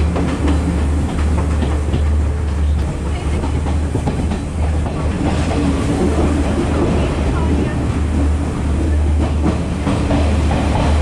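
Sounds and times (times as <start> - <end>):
train rumble: 0.0 - 11.0
wheels clicking over rails: 0.0 - 11.0.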